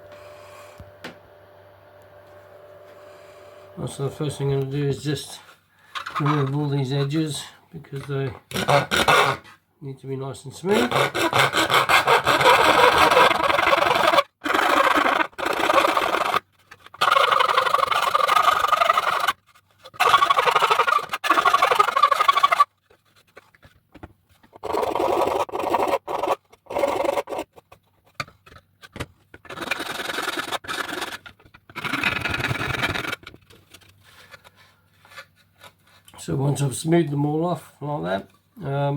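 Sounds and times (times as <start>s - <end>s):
hand file rasping on plastic: 8.5s - 9.6s, 10.7s - 23.8s, 24.4s - 36.1s.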